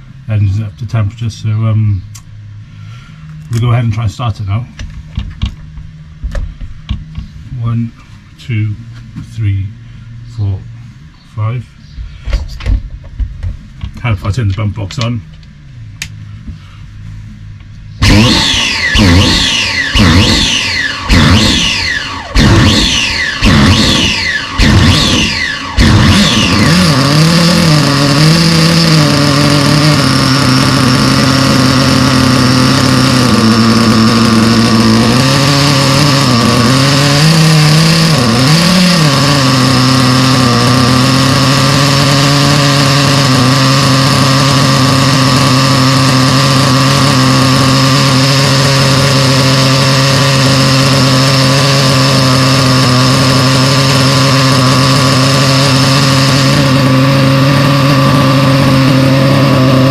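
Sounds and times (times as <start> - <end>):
nitro engine idling: 0.0 - 59.9.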